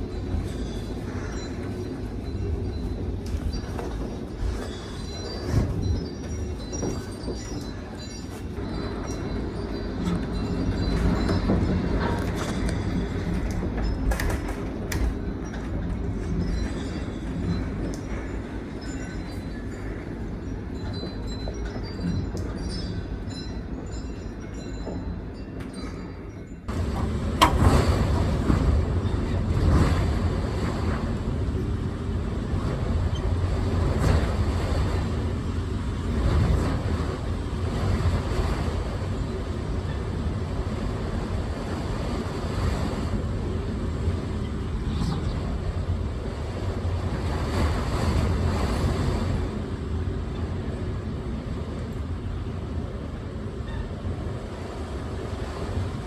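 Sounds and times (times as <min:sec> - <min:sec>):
storm wind buffeting microphone: 0:00.0 - 0:23.3, 0:26.6 - 0:56.0.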